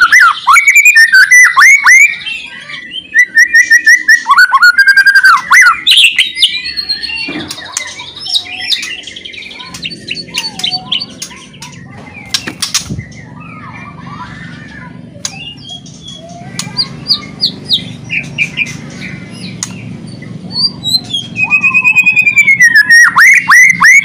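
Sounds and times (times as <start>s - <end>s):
bird singing whistled phrases: 0.0s - 11.5s, 20.5s - 24.0s
soft varied bird calls: 0.0s - 24.0s.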